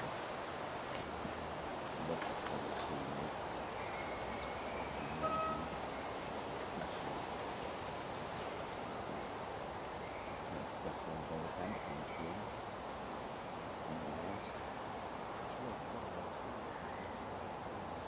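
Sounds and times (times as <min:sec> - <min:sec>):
leaves rustling in breeze: 0:00.0 - 0:18.0
faint bird chirps: 0:01.0 - 0:07.5, 0:10.0 - 0:12.6.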